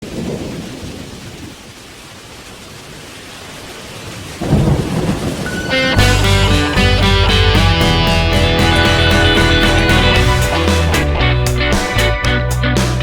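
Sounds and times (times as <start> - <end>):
thunder rumbling: 0.0 - 1.9, 3.2 - 12.1
steady rain hiss: 0.0 - 13.0
guitar music: 5.5 - 13.0.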